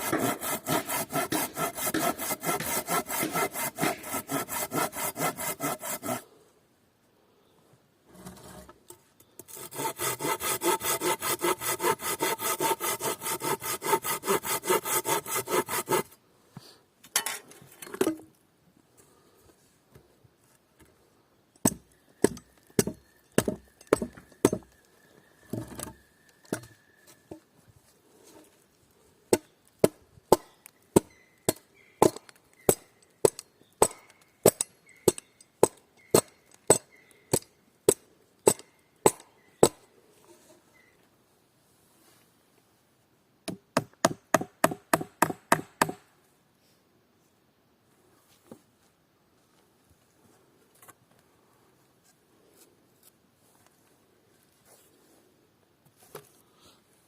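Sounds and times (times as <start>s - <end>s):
hand saw cutting wood: 0.0s - 6.2s, 9.4s - 16.2s.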